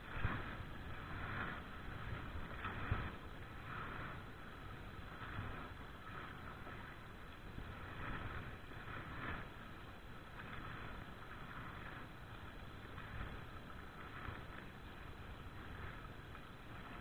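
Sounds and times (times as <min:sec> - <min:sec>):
water lapping around boat: 0:00.0 - 0:17.0
wind rumbling on microphone: 0:00.0 - 0:17.0.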